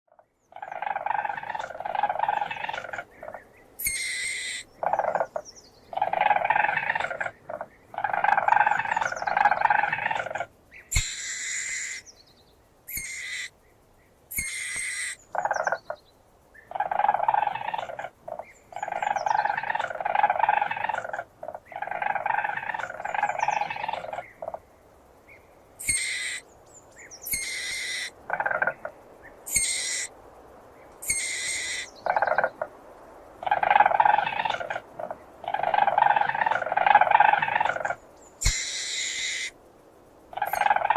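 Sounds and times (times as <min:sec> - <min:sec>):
weasel trilling calls: 0:00.5 - 0:12.1, 0:12.9 - 0:13.5, 0:14.3 - 0:15.9, 0:16.7 - 0:24.5, 0:25.8 - 0:30.1, 0:31.0 - 0:32.6, 0:33.4 - 0:39.6, 0:40.4 - 0:40.9.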